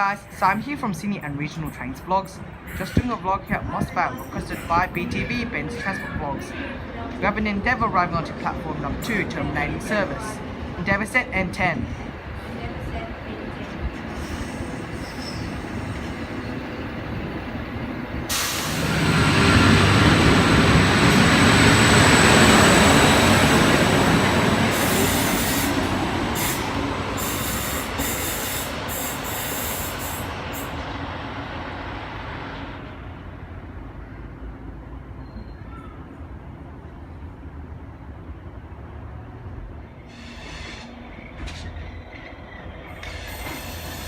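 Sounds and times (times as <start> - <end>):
diesel railcar engine and wheels: 0.0 - 44.0
hiss: 18.3 - 19.1, 26.4 - 30.8, 40.1 - 41.0, 43.0 - 44.0.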